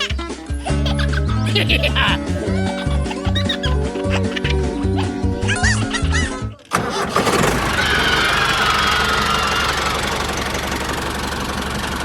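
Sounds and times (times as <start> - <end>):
small engine idling: 6.7 - 12.0.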